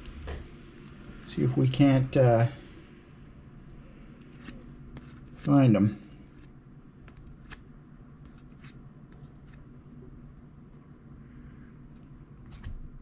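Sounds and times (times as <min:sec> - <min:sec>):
low background hum: 0:00.0 - 0:13.0
trading cards rustling and clicking: 0:04.2 - 0:09.7, 0:12.0 - 0:12.8.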